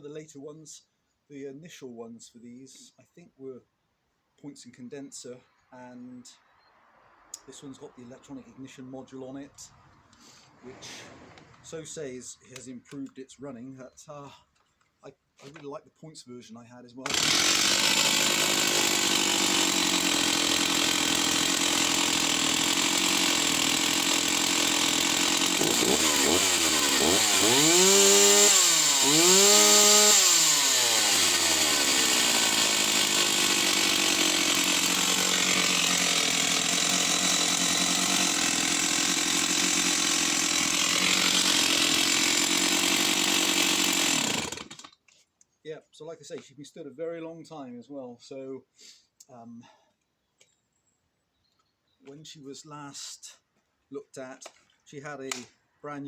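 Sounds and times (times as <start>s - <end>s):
chainsaw running at high revs: 17.0s - 44.9s.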